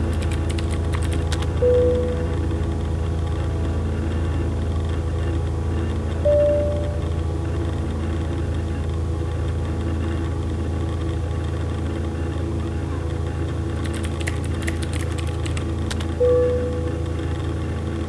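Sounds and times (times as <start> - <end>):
low electrical hum: 0.0 - 18.0
sharp clicks: 0.1 - 1.6, 13.8 - 16.3
short beep: 6.3 - 7.1.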